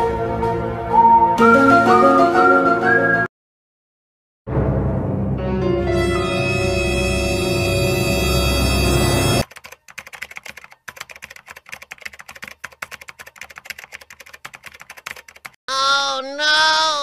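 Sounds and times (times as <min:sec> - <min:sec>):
loud music cue: 0:04.5 - 0:09.4
typing on computer keyboard: 0:09.4 - 0:15.6
short pitched voice-like sound: 0:15.7 - 0:17.0.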